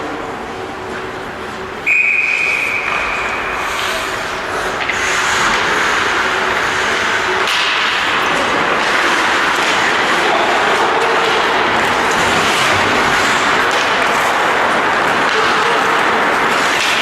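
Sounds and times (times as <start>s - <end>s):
hall background noise: 0.0s - 17.0s
referee's whistle long blast: 1.9s - 3.3s.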